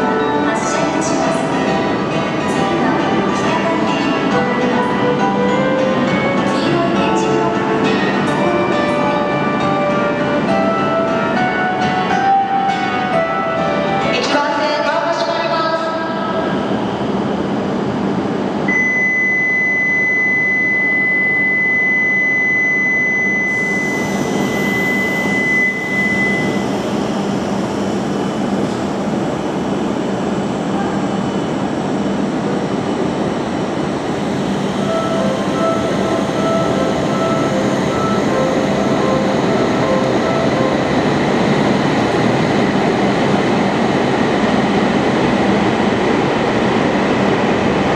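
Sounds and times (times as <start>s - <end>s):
train rushing past platform: 0.0s - 18.7s, 23.2s - 47.9s
pulsing beeping signal: 18.7s - 27.8s, 34.2s - 42.7s
high electronic tone: 18.7s - 28.0s, 33.9s - 42.7s
platform melody: 34.2s - 43.7s.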